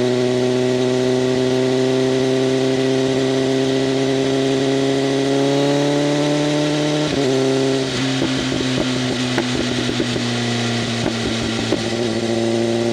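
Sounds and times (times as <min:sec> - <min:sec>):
motorcycle engine revving: 0:00.0 - 0:12.9
exhaust crackling pops: 0:08.0 - 0:12.2.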